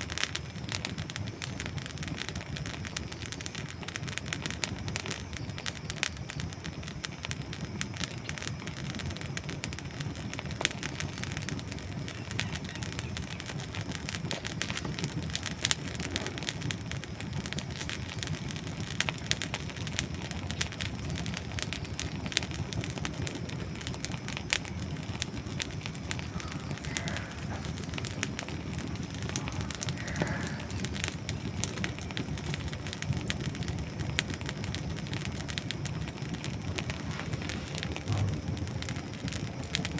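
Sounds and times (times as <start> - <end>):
fire flames rushing: 0.0 - 39.9
wood crackling and popping: 0.0 - 39.9.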